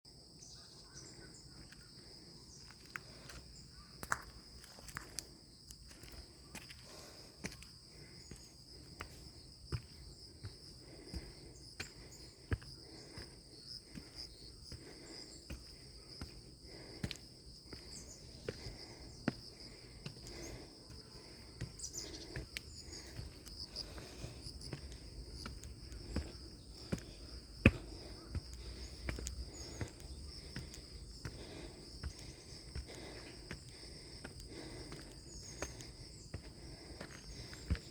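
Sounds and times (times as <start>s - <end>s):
insects chorus: 0.1s - 37.9s
footsteps on stairs: 22.4s - 37.9s.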